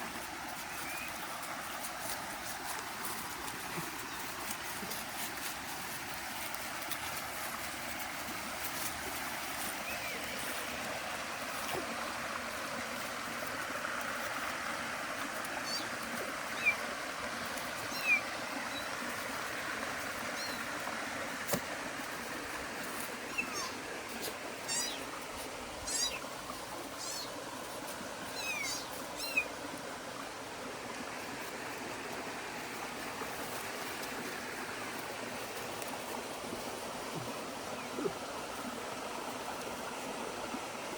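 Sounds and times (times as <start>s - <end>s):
stream running: 0.0s - 40.9s
short high animal calls: 23.3s - 25.2s, 25.8s - 26.2s, 28.3s - 29.6s.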